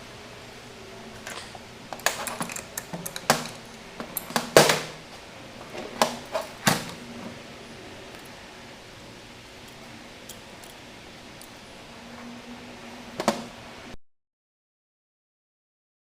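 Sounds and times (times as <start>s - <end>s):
small hard parts clicking: 1.2s - 4.8s.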